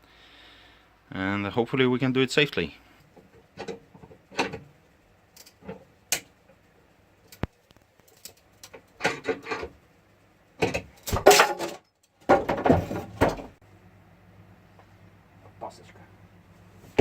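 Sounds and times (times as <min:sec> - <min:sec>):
metal car jack clattering: 0:10.6 - 0:13.4.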